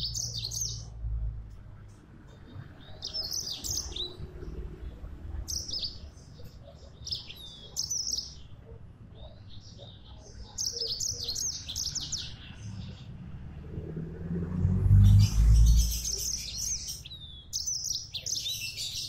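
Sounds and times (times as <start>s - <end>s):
canary singing: 0.0s - 1.0s, 2.8s - 8.5s, 9.2s - 13.1s, 15.0s - 19.0s.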